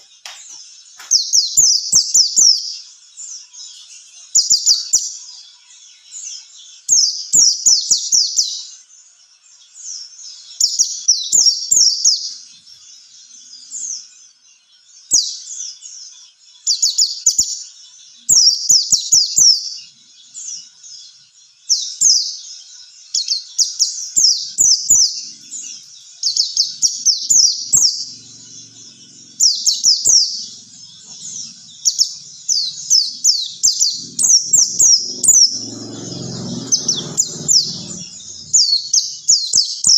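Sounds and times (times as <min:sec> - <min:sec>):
bird singing high twittering notes: 0:09.9 - 0:39.9.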